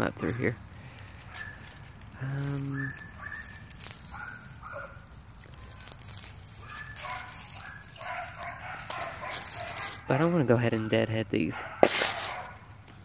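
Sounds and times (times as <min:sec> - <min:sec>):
dog barking: 0:02.7 - 0:05.9, 0:06.6 - 0:10.4, 0:11.6 - 0:12.7.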